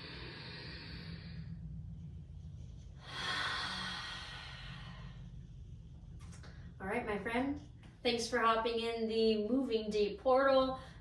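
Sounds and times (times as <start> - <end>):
woman inhaling: 0.0 - 1.6, 3.0 - 5.4.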